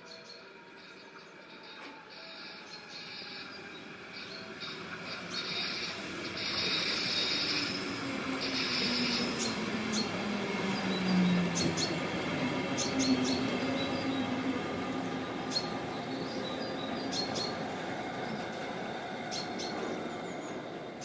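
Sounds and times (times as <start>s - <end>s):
train wheels squealing: 0.0s - 14.8s, 15.4s - 21.0s
train brakes whining: 1.5s - 14.0s.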